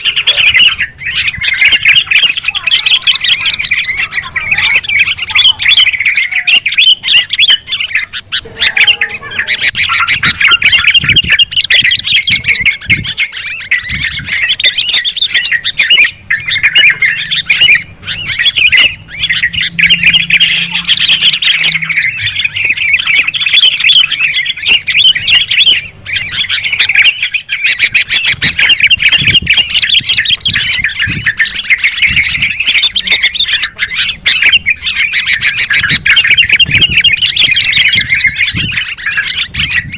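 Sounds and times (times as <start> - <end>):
bulbuls chattering and squawking: 0.0 - 39.9.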